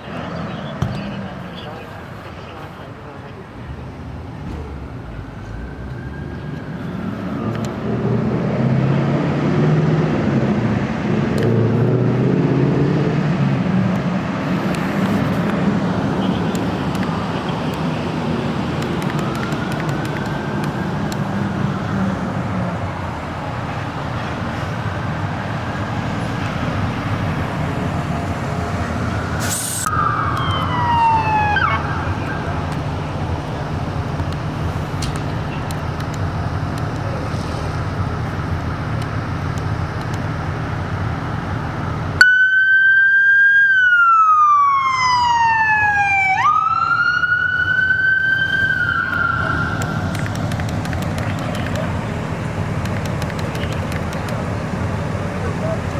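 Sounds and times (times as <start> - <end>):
engine drone: 0.0 - 42.4, 43.8 - 55.9
fire engine sirens wailing: 0.0 - 55.9.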